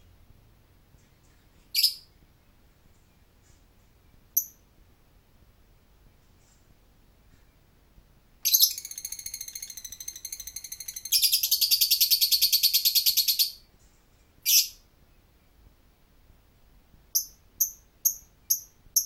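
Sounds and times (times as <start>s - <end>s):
bird chattering trill: 8.5s - 13.6s.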